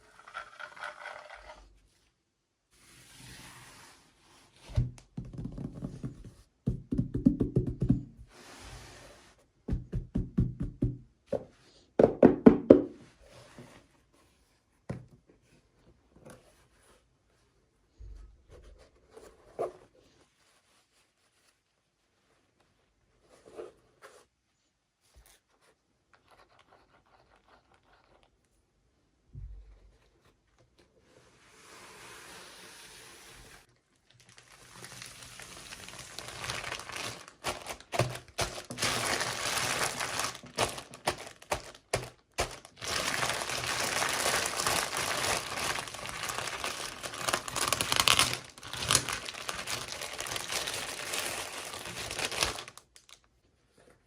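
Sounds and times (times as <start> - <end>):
packaging crinkling and tearing: 34.0 - 53.3.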